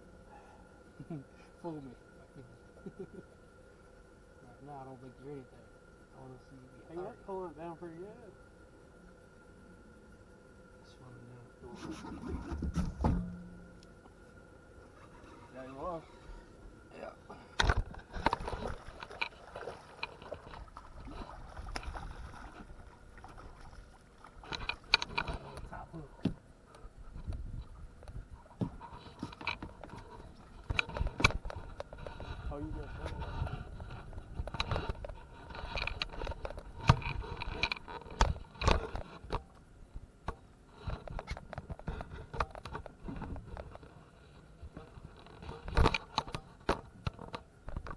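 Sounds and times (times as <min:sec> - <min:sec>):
water against boat: 0:00.0 - 0:47.9
sharp thumps: 0:12.2 - 0:13.7.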